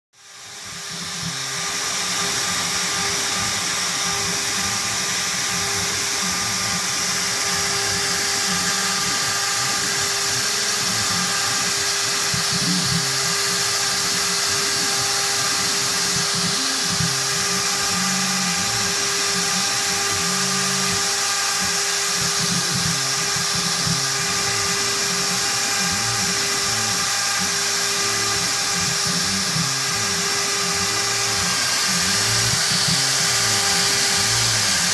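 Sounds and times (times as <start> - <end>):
router spindle whine: 0.2 - 34.9.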